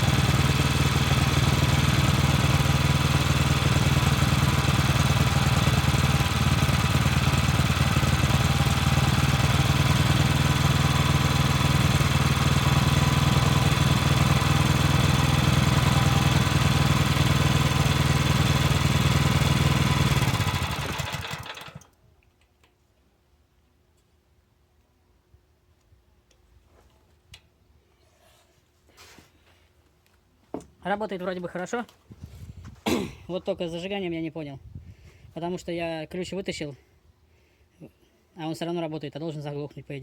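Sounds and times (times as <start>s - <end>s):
petrol engine running: 0.0s - 21.9s.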